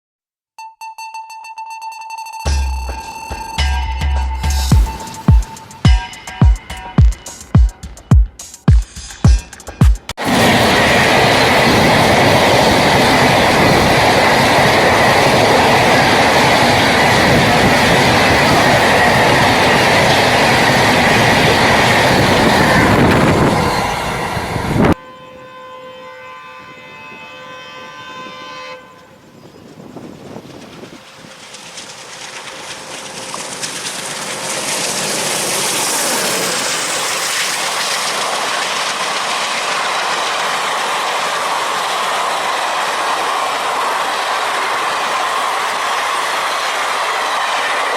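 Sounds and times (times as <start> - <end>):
train passing at speed: 2.5 - 47.9
locomotive horn: 22.8 - 29.2.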